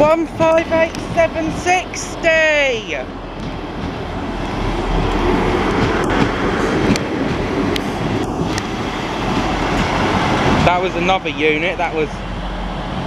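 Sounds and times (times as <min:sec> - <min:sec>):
train engines and wheels rumbling: 0:00.0 - 0:13.0.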